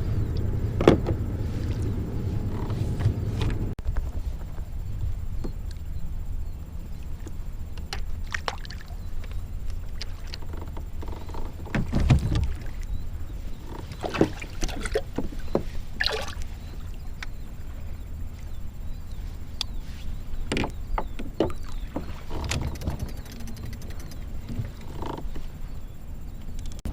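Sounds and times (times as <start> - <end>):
water and wind rumbling around hull: 0.0 - 26.9
short water splashes: 8.0 - 9.0, 13.8 - 17.0.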